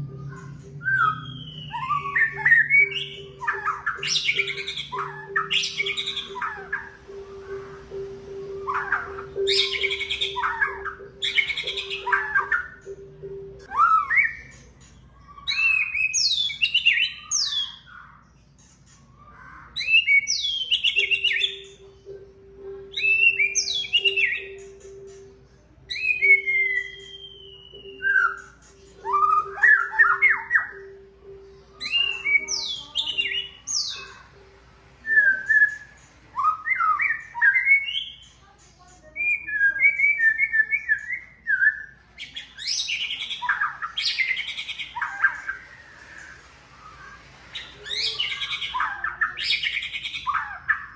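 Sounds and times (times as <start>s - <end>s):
bird singing whistles: 0.4s - 7.7s, 8.4s - 12.9s, 13.7s - 14.5s, 23.0s - 24.6s, 25.9s - 30.9s, 35.0s - 38.2s, 39.2s - 50.9s.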